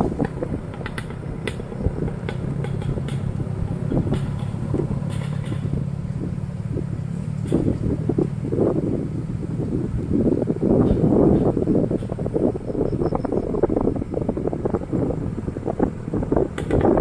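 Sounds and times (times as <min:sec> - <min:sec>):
motorcycle engine running: 0:00.0 - 0:17.0
clicks and knocks: 0:00.2 - 0:05.8.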